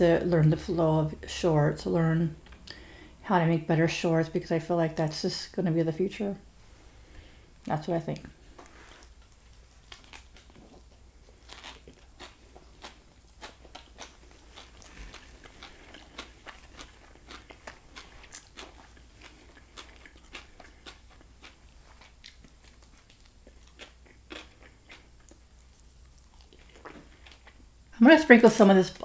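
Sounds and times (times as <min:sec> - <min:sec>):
chewing crunches: 0:08.5 - 0:27.7.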